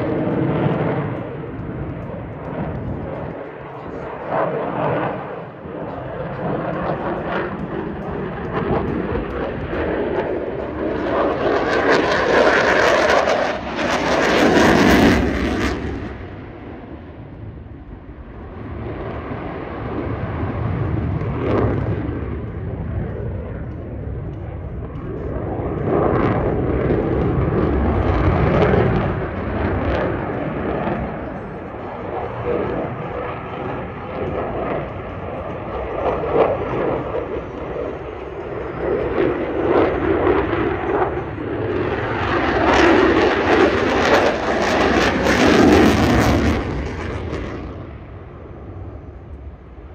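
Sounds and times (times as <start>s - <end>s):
jet engines roaring: 0.0s - 49.9s.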